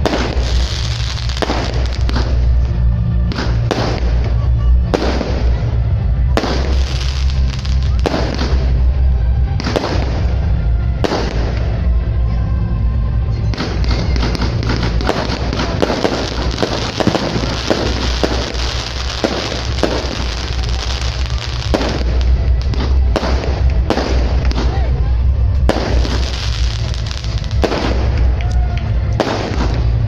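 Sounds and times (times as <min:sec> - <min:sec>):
fireworks bangs and crackling: 0:00.0 - 0:12.4, 0:13.4 - 0:30.0
music playing: 0:00.0 - 0:30.0.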